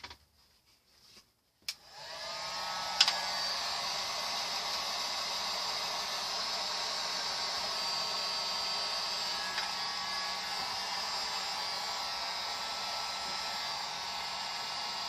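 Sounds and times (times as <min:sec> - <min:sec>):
small electric blower running: 0:01.8 - 0:15.0.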